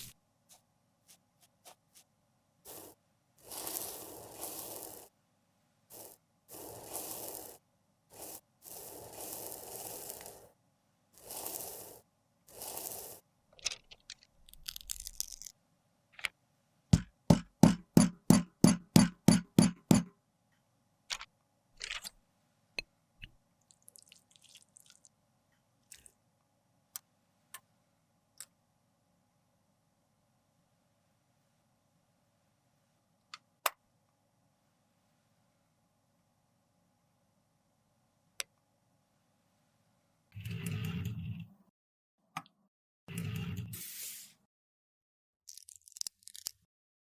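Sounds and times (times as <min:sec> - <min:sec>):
makeup scraping: 0:02.7 - 0:05.1, 0:05.9 - 0:10.5, 0:11.2 - 0:13.2.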